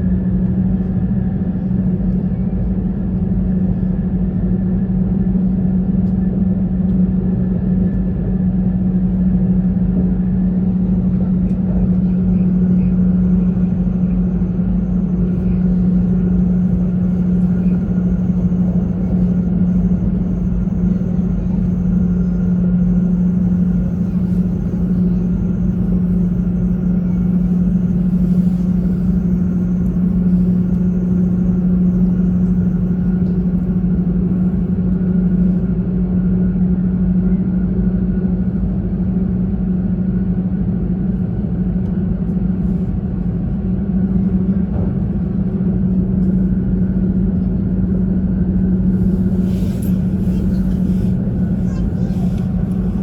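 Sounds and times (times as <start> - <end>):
train cabin rumble: 9.0 - 35.9, 42.5 - 53.0.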